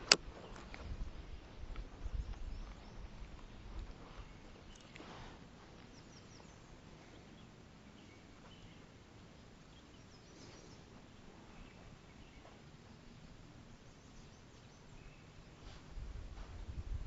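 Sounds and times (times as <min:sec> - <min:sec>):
faint bird chirps: 0:00.4 - 0:05.1, 0:05.8 - 0:15.8.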